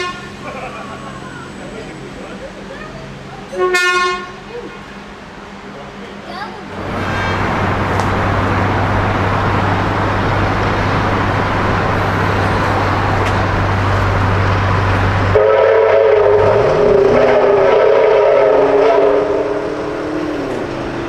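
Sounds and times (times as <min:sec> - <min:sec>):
train horn chord: 0:00.0 - 0:00.4, 0:03.5 - 0:04.4, 0:06.8 - 0:07.7, 0:15.3 - 0:20.0
train rumbling past: 0:00.0 - 0:21.0.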